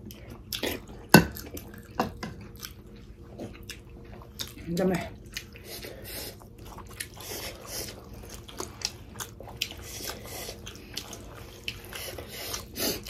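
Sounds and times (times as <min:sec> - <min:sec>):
people chewing with wet smacks: 0:00.0 - 0:13.0.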